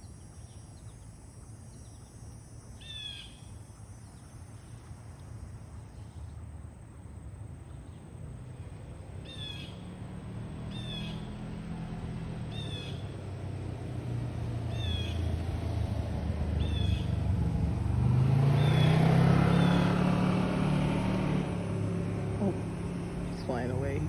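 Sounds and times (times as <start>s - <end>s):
low vehicle rumble: 0.0s - 24.0s
harsh bird calls: 2.8s - 4.3s, 9.2s - 9.8s, 10.7s - 11.4s, 14.7s - 15.3s, 18.5s - 20.0s.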